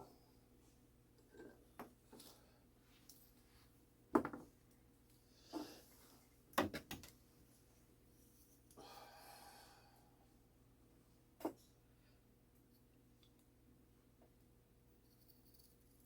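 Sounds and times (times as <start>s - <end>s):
tools knocking on workbench: 4.1s - 4.4s.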